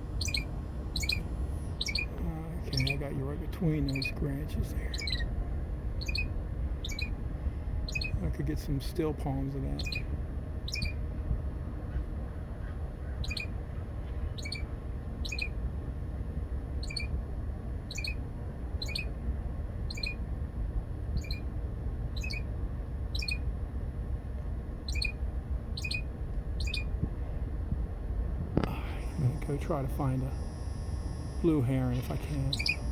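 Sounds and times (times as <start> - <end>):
songbird calling: 0.0 - 5.4, 6.0 - 7.2, 7.8 - 8.3, 9.5 - 11.0, 13.0 - 15.6, 16.8 - 17.2, 17.9 - 19.2, 19.9 - 20.2, 21.1 - 21.5, 22.1 - 22.5, 23.1 - 23.5, 24.8 - 25.2, 25.8 - 27.0, 29.0 - 32.9.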